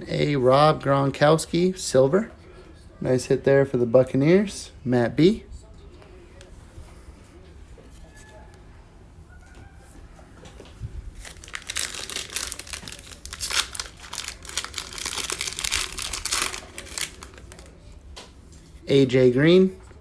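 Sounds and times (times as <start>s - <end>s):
crinkly wrapper tearing and rustling: 11.1s - 17.8s.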